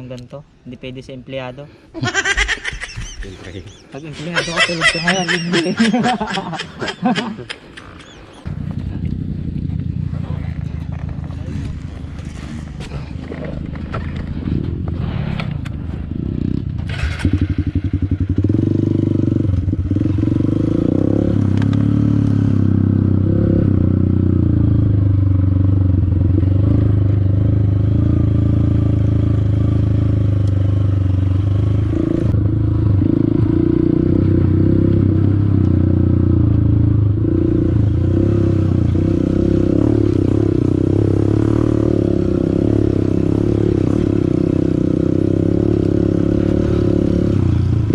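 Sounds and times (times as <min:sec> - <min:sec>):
motorcycle engine running: 0:08.0 - 0:14.9.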